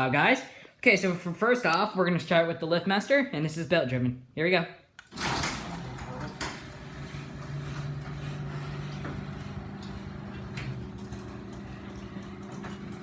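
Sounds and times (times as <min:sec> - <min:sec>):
garage door opener motor humming: 0:05.1 - 0:13.0.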